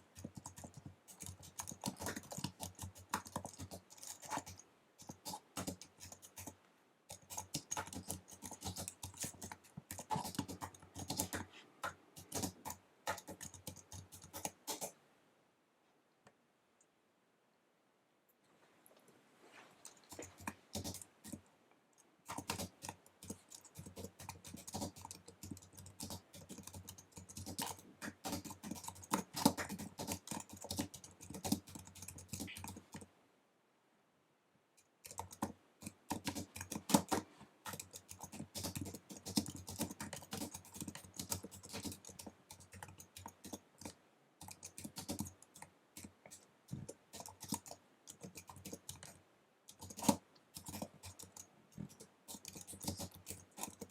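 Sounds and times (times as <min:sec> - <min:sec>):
fast keyboard typing: 0:00.0 - 0:15.0, 0:19.9 - 0:21.4, 0:22.2 - 0:33.1, 0:35.0 - 0:53.9.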